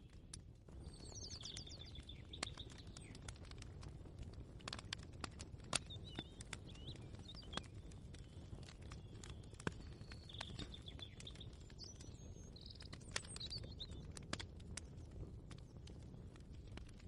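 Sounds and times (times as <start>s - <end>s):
birds chirping: 0.8s - 3.6s, 5.8s - 14.1s.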